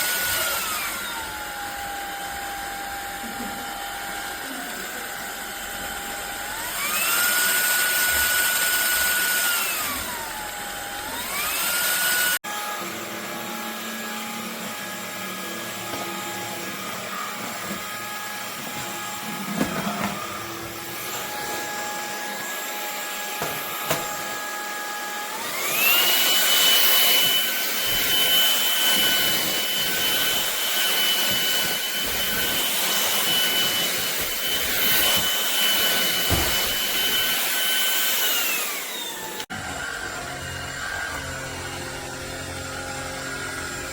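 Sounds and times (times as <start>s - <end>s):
vacuum cleaner motor whine: 0.0s - 43.9s
knocks: 36.2s - 36.8s.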